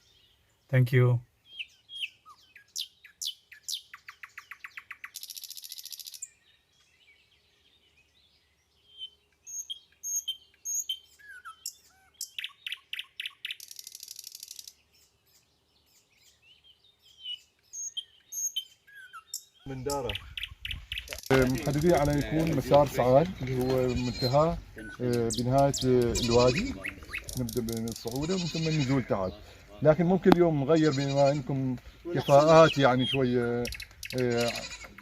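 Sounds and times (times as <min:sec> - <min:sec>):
songbird singing: 0:00.0 - 0:35.0.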